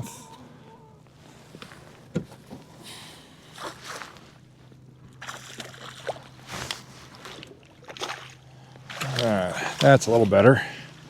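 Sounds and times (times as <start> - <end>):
faint low hum: 0.0 - 11.0
water splashes: 5.2 - 10.8.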